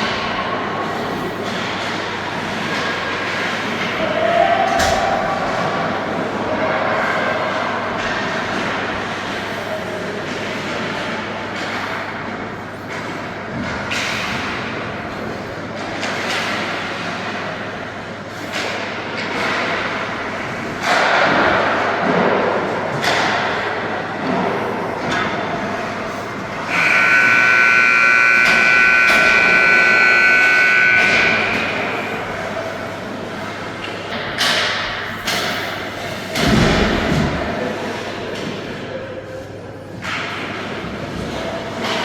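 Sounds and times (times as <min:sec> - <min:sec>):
loud steady horn: 0:26.0 - 0:33.2.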